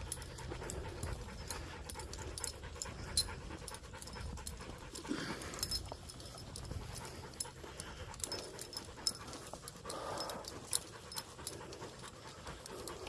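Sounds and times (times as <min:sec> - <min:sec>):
dog panting: 0:00.0 - 0:13.0
footsteps on a trail: 0:00.0 - 0:13.0.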